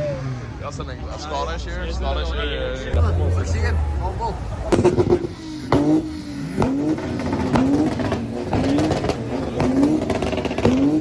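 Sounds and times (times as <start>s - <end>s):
car engine revving: 3.0s - 11.0s.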